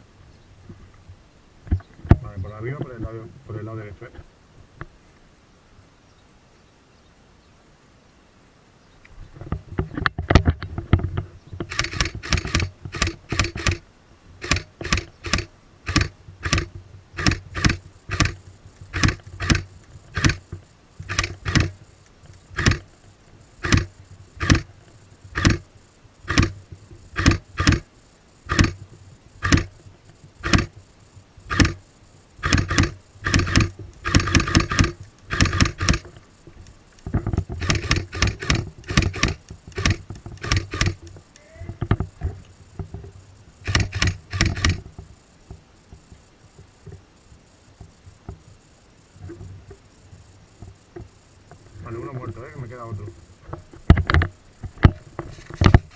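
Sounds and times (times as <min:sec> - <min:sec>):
gear rattling: 0:10.4 - 0:13.8, 0:14.4 - 0:25.7, 0:26.3 - 0:27.9, 0:28.5 - 0:30.8, 0:31.5 - 0:31.8, 0:32.4 - 0:36.3, 0:37.0 - 0:41.2, 0:42.9 - 0:45.0.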